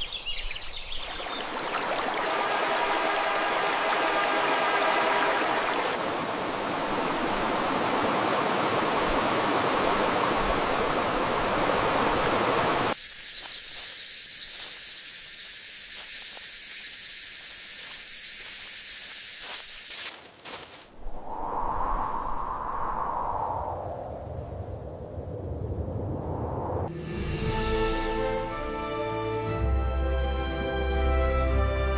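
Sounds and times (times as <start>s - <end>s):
running water rushing: 0.6s - 13.0s
high-pitched outdoor hiss: 9.4s - 20.2s.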